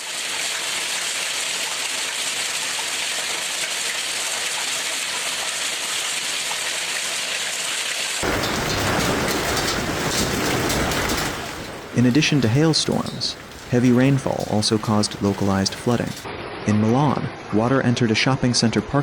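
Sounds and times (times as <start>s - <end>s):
deep rumble: 8.2s - 16.2s
heavy rain downpour: 8.2s - 16.3s.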